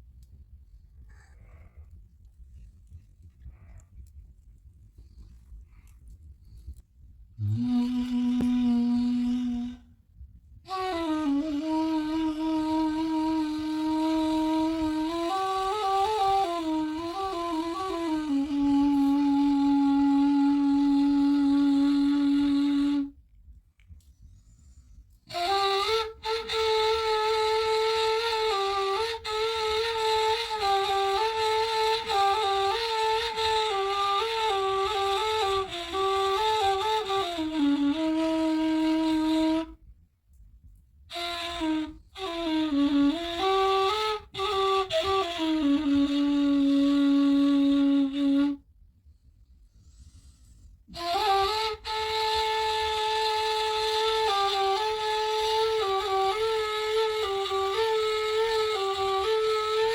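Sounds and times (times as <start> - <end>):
solo flute slow melody: 5.0 - 40.1, 41.0 - 59.9.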